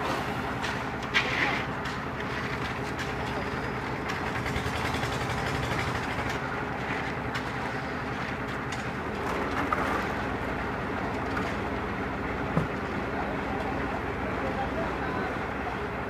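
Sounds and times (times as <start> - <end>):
construction machinery engine drone: 0.0 - 16.0.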